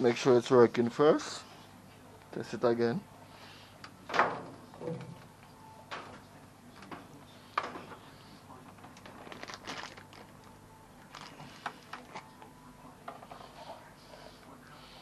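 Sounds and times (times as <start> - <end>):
plastic crinkling: 9.0 - 12.2.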